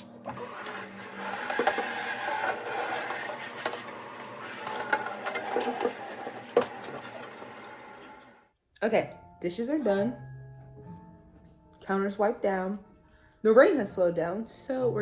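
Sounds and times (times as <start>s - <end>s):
water running in sink: 0.0s - 8.5s.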